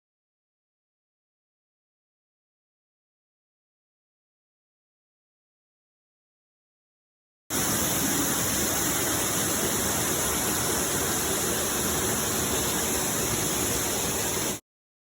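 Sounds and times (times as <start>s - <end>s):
waterfall rushing: 7.5s - 14.6s.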